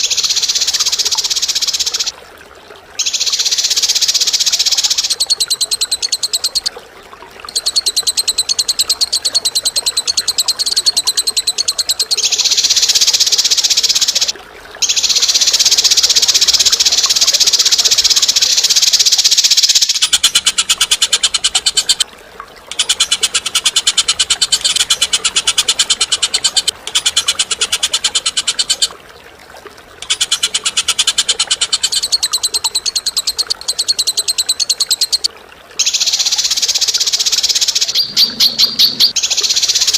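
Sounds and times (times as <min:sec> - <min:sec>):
bird chattering trill: 0:07.5 - 0:22.0, 0:22.7 - 0:28.9, 0:30.0 - 0:39.9.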